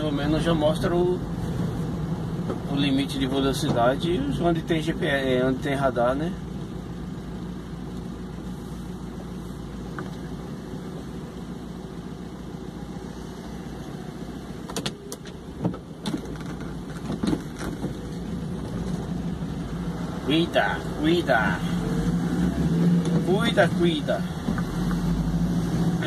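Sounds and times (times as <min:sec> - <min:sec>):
vehicle engine idling: 0:00.0 - 0:26.0
sharp clicks and knocks: 0:14.6 - 0:19.0.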